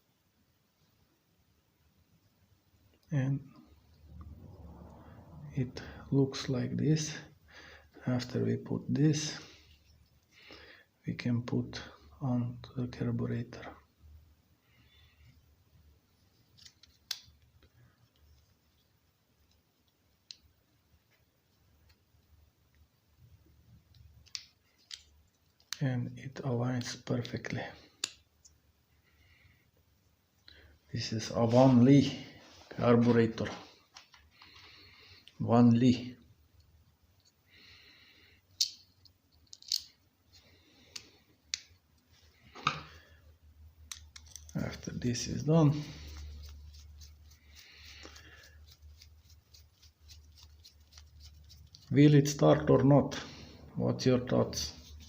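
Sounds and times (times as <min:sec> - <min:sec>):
clicks and taps of small parts: 0:38.5 - 0:39.9, 0:43.8 - 0:44.5.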